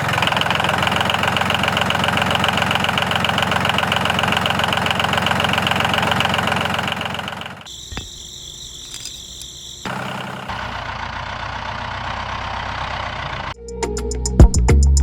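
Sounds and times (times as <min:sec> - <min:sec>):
engine running with fast pulse: 0:00.0 - 0:13.6
click: 0:08.8 - 0:09.6.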